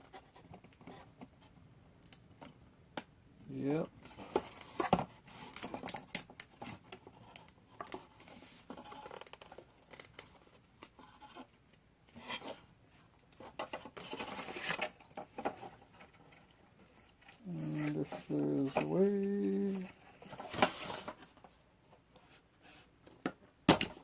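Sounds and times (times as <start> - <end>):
packaging rustling and scratching: 4.0 - 12.7, 13.3 - 21.6.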